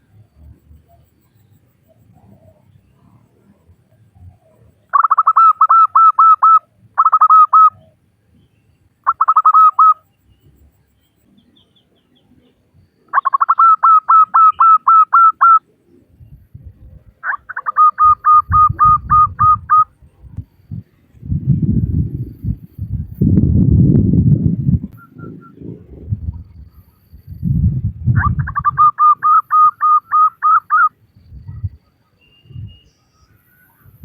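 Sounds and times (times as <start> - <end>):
dove calling in staccato notes: 4.9 - 8.0, 9.0 - 10.0, 13.1 - 15.7, 17.2 - 19.9, 28.1 - 31.7
low rumbling bumps: 18.5 - 26.7.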